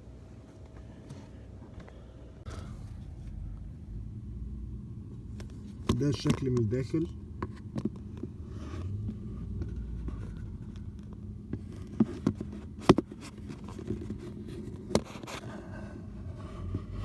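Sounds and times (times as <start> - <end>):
steady low rumble: 1.9 - 12.8, 15.4 - 17.0.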